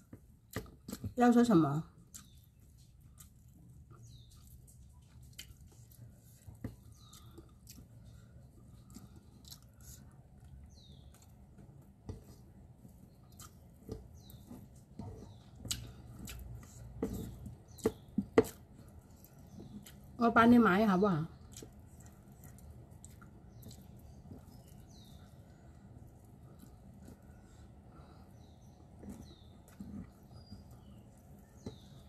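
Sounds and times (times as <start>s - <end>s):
person chewing: 2.0s - 11.6s, 12.3s - 20.2s, 21.4s - 27.7s.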